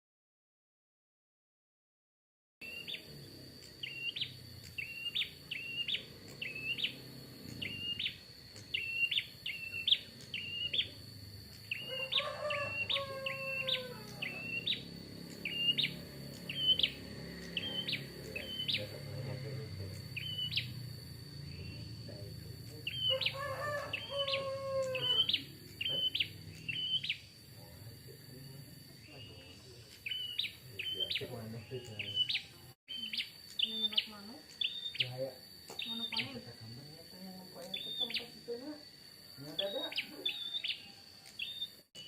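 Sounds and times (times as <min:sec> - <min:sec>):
steady high whine: 0:02.6 - 0:23.3
rooster crowing: 0:10.4 - 0:26.8, 0:31.0 - 0:32.7, 0:39.3 - 0:41.8.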